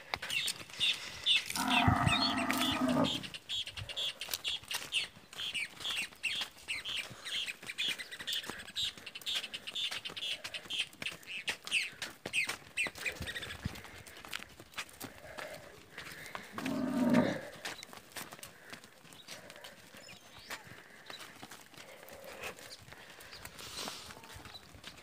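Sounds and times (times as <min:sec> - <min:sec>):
bird chirping: 0:00.3 - 0:03.7
cattle footfalls: 0:01.4 - 0:03.3, 0:04.3 - 0:25.0
long loud animal call: 0:01.5 - 0:03.3, 0:16.5 - 0:17.5.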